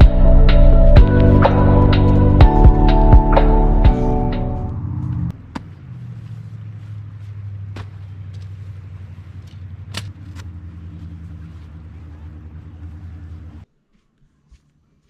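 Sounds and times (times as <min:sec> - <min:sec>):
background music: 0:00.0 - 0:05.3
motorcycle engine running: 0:00.0 - 0:13.7.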